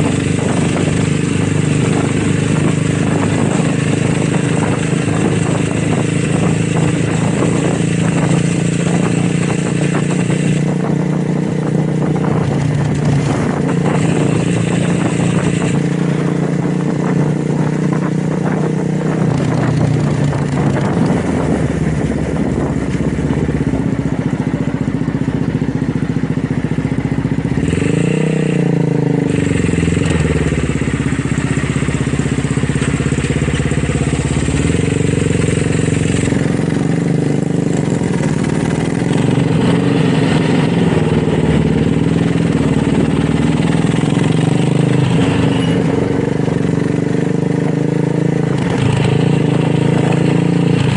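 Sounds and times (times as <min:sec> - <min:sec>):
motorcycle engine idling: 0:19.4 - 0:27.6, 0:29.3 - 0:46.7.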